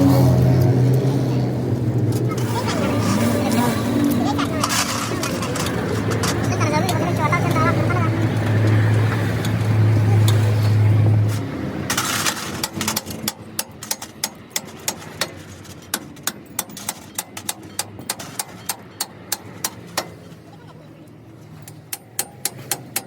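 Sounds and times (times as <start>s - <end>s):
hammer tapping on metal: 21.6s - 23.0s.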